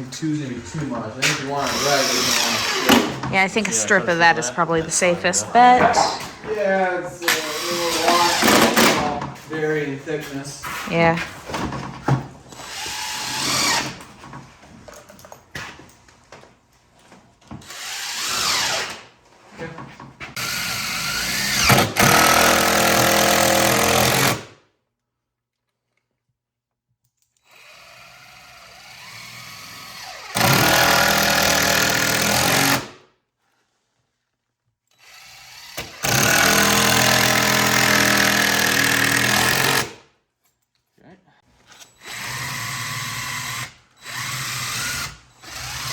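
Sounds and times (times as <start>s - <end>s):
power drill running: 1.5s - 4.9s, 7.3s - 9.1s, 12.5s - 14.0s, 17.6s - 19.0s, 20.4s - 24.4s, 27.5s - 32.9s, 34.9s - 40.0s, 41.8s - 45.9s.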